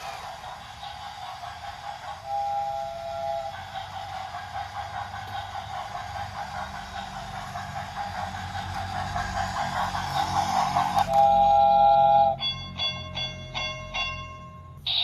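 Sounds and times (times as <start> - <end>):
hiss: 0.0 - 12.4
train rumbling clatter: 0.0 - 15.0.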